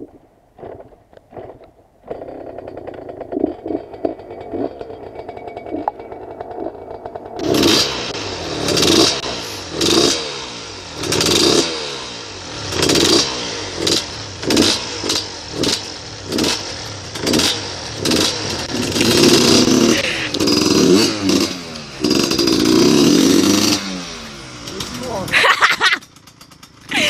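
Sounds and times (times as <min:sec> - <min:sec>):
motorcycle engine revving: 0:00.7 - 0:27.0.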